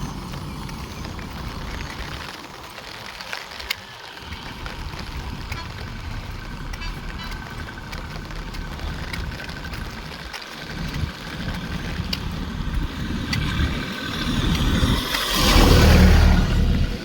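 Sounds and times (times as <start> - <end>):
vehicle engine rumbling: 0.0 - 17.0
loud rushing noise: 12.6 - 17.0.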